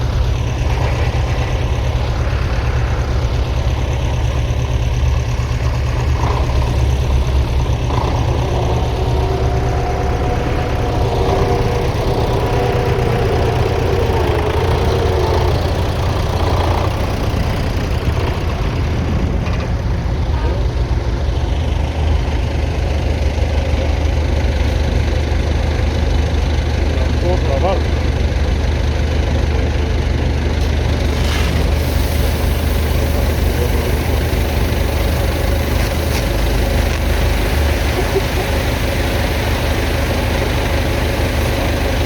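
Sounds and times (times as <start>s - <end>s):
whining tone: 0.0s - 20.7s
tractor engine droning under load: 0.0s - 42.0s.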